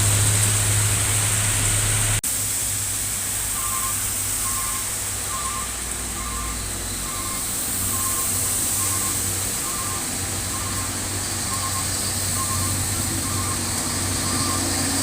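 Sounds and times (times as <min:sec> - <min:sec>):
heavy truck engine humming: 0:00.0 - 0:15.0
high electronic double beep: 0:03.6 - 0:10.9, 0:11.5 - 0:13.6.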